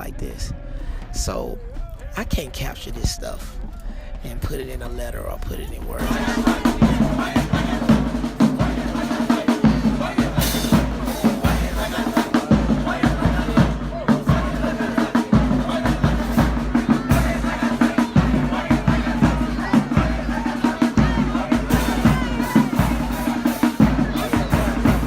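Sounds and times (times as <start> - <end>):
marching band music: 5.8 - 25.0
snare and bass drum beat: 5.8 - 25.0.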